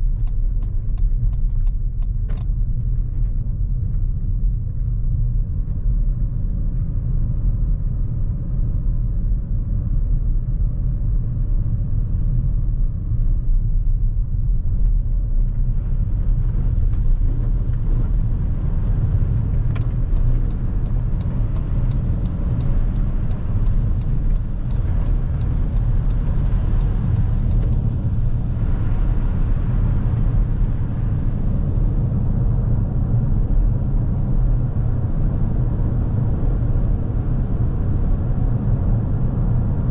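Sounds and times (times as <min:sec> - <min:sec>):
road and tyre noise: 0:00.0 - 0:39.9
sharp ticks: 0:19.4 - 0:27.9.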